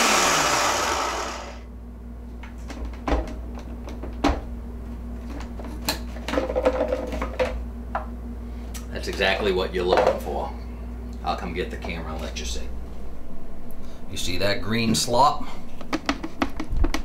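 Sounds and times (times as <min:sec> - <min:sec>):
food processor running: 0:00.0 - 0:01.6.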